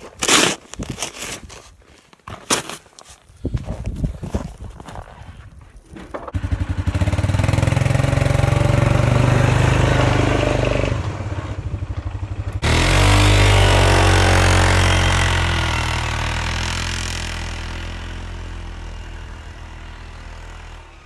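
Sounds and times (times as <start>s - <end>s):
atv engine running and revving: 6.3s - 21.0s.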